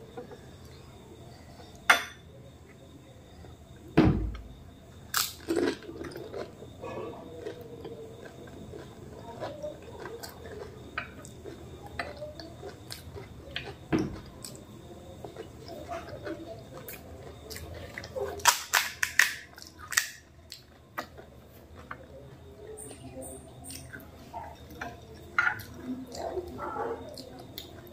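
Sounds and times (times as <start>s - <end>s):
wet chewing: 5.1s - 27.9s.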